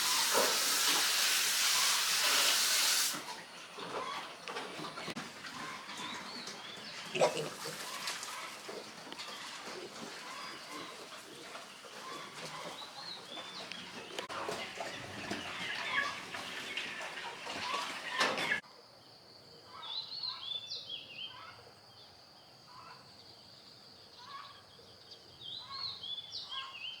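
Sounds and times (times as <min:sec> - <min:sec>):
birds chirping: 0:03.4 - 0:18.6.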